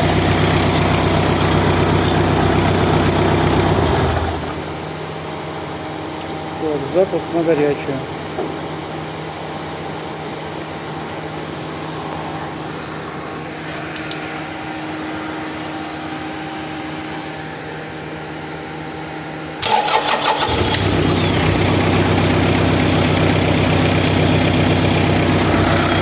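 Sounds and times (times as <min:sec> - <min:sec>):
diesel engine cranking and idling: 0:00.0 - 0:05.0, 0:19.6 - 0:26.0.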